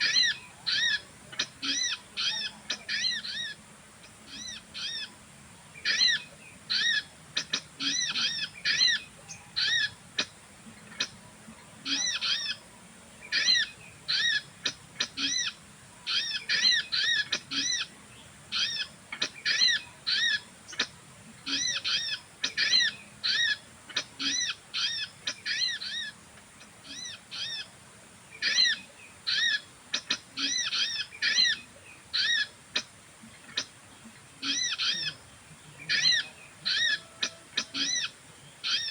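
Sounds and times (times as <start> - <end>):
bird chirping: 13.2 - 38.9.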